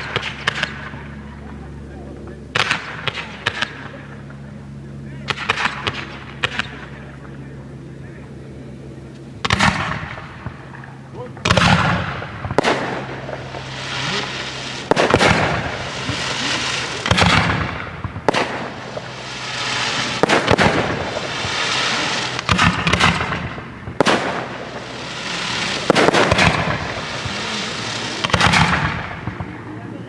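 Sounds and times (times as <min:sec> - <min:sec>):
fireworks crackling: 0:00.0 - 0:07.4, 0:09.1 - 0:30.0
firework shells bursting: 0:09.4 - 0:29.7.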